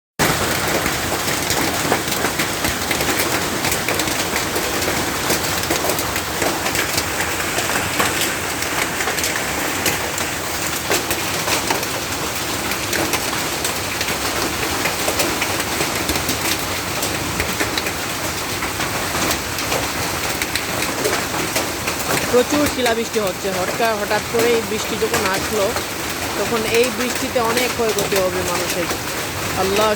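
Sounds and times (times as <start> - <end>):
hailstones striking: 0.2 - 29.9
heavy rain downpour: 0.2 - 29.9.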